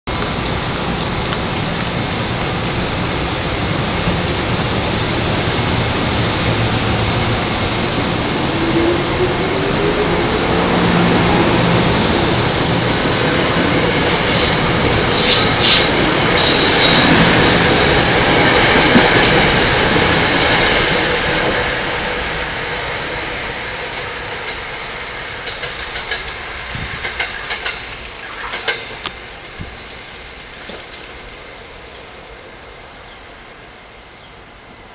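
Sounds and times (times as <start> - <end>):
electric train rushing by: 0.1 - 34.9
high-pitched train screeches: 13.3 - 29.0.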